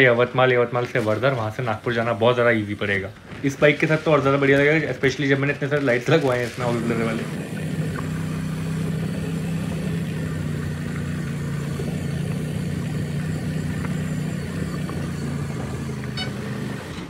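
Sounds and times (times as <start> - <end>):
motorcycle engine running: 6.6 - 17.0.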